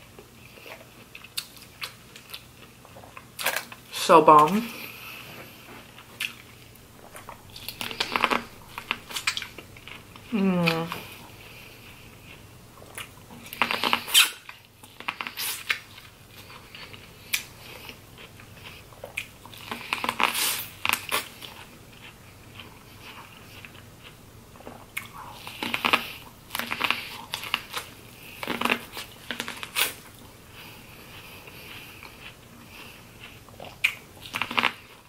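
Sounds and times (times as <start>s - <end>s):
chewing and crackling: 0.0s - 35.0s
mouth noises: 10.2s - 11.2s
squeaky crab shell: 13.8s - 14.5s.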